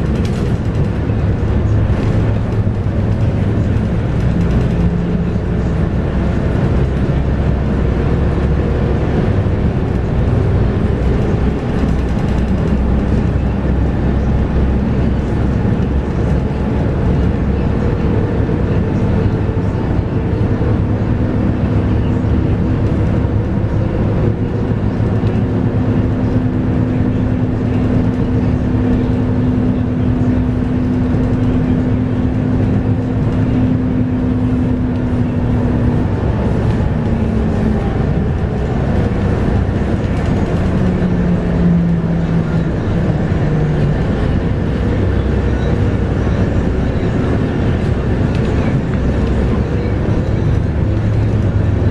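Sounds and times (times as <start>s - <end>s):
bus diesel engine running: 0.0s - 51.9s
road noise: 0.0s - 51.9s.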